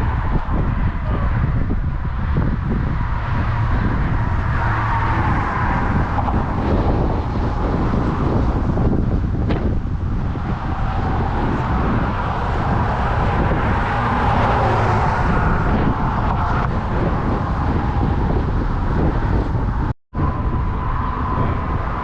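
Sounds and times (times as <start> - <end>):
vehicle rumbling: 0.0 - 22.0.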